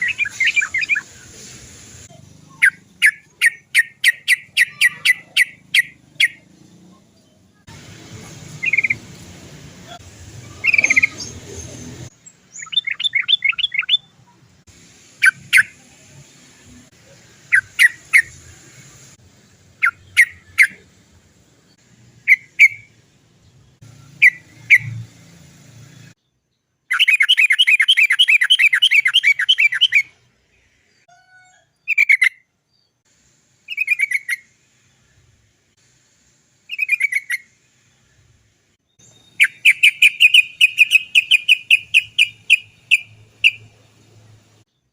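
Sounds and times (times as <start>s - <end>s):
bulbul sharp calls: 0.0s - 1.3s, 2.1s - 6.5s, 8.5s - 9.0s, 9.9s - 14.4s, 17.4s - 18.4s, 19.8s - 20.9s, 22.2s - 23.0s, 24.1s - 25.0s, 26.9s - 30.2s, 33.7s - 34.5s, 36.7s - 37.6s, 39.0s - 44.0s
fast rolling bird trill: 0.0s - 1.4s, 2.0s - 6.7s, 8.2s - 9.2s, 9.9s - 14.2s, 26.9s - 30.2s, 33.6s - 34.5s, 36.6s - 37.6s, 39.0s - 44.6s.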